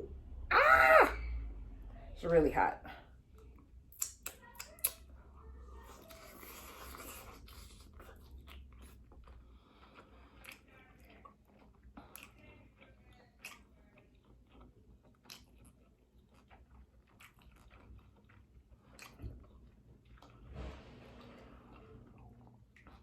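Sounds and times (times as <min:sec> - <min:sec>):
chewing with wet mouth clicks: 0:03.3 - 0:05.2, 0:05.9 - 0:20.4, 0:21.7 - 0:23.0
breathing: 0:09.4 - 0:10.5.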